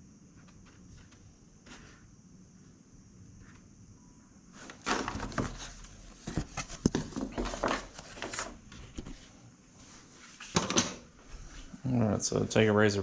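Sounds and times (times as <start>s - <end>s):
rustling and scraping: 0.3s - 2.7s, 4.5s - 11.8s.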